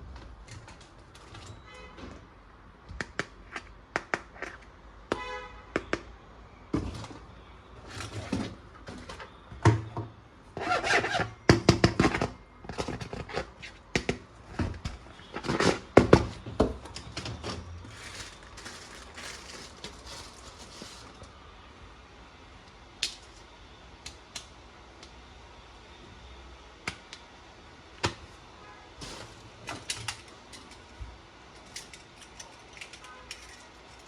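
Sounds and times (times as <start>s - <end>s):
packaging scraping and rustling: 16.9s - 21.4s, 29.0s - 29.9s
plastic toys clicking and knocking: 31.6s - 34.0s.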